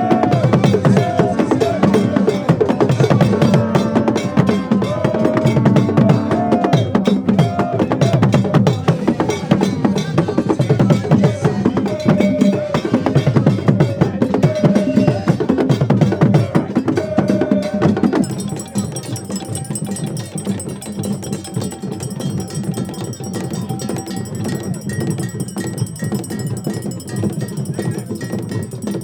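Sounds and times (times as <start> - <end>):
fast percussion drumming: 0.0 - 29.0
steady high tones: 18.2 - 29.0
wood block strikes: 18.2 - 29.0.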